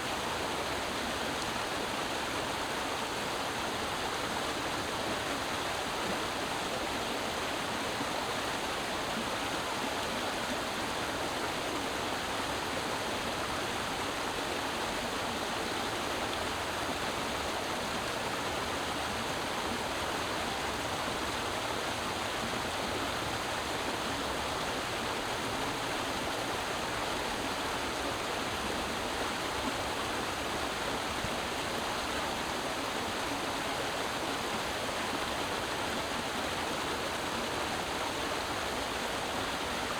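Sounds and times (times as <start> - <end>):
creek water running over rocks: 0.0 - 39.9.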